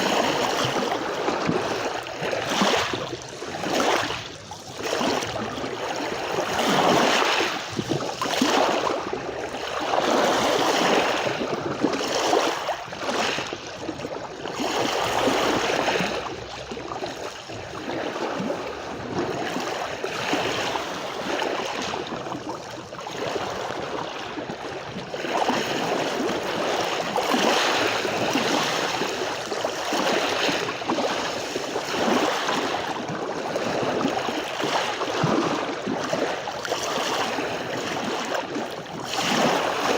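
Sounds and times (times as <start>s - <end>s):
surf on sandy beach: 33.7s - 39.9s.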